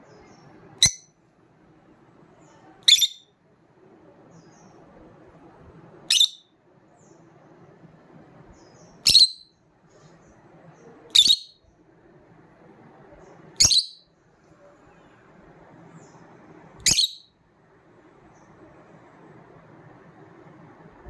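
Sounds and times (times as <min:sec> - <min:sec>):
faint low murmur: 0:00.0 - 0:21.0
bird shrill calls: 0:02.9 - 0:03.3, 0:06.1 - 0:06.4, 0:09.0 - 0:09.5, 0:11.1 - 0:11.6, 0:13.6 - 0:14.0, 0:16.8 - 0:17.3.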